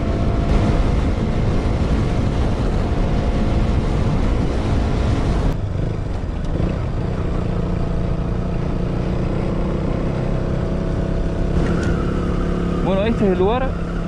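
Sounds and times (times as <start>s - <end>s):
wind noise on microphone: 0.0s - 5.6s
motorcycle engine running: 0.0s - 14.0s.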